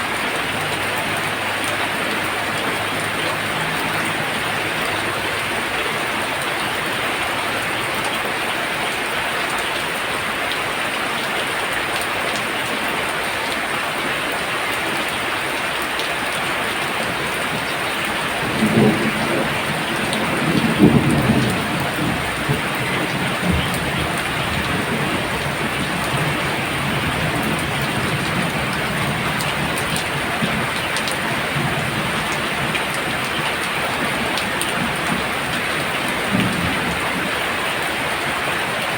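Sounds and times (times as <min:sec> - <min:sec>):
heavy rain pouring: 0:00.0 - 0:38.9
low rumble of thunder: 0:17.1 - 0:37.9.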